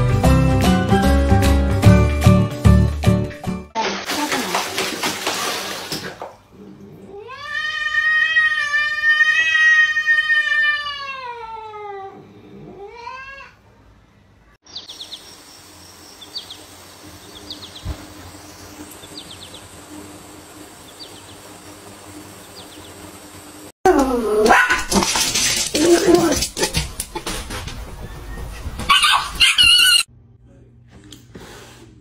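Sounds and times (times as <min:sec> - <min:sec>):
cat meowing: 0:07.1 - 0:13.6
cat yowling: 0:07.1 - 0:13.6.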